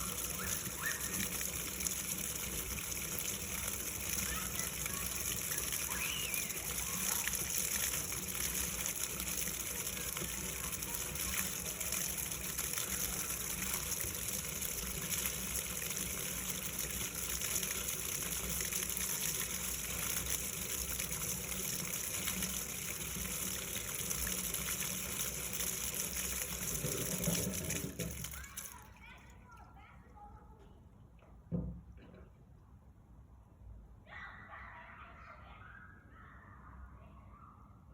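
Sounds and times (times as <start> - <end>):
water gushing from pump: 0.0 - 29.6.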